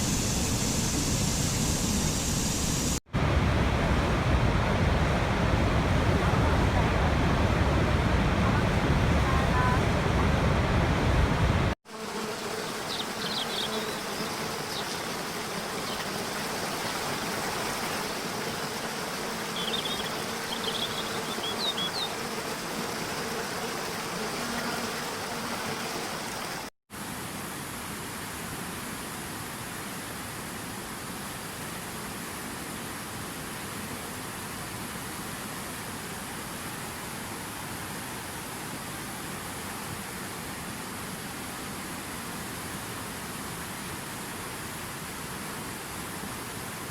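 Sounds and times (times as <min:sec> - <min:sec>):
bird chirping: 0:19.6 - 0:22.1.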